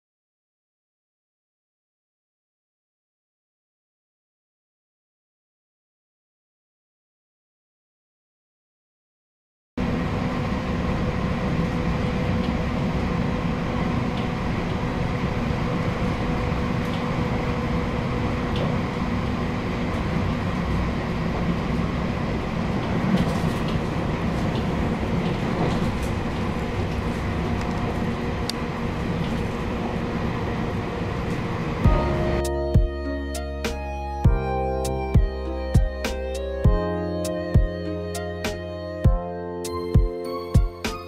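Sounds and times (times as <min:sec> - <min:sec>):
wheels rumbling on rails: 0:09.8 - 0:33.6
diesel engine drone: 0:09.8 - 0:41.0.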